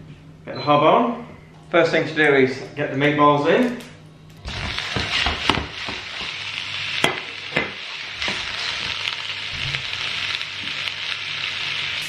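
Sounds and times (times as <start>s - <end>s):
meatballs knocking in a pan: 4.5s - 6.4s, 7.0s - 8.5s
meatballs sizzling in a frying pan: 4.5s - 12.0s.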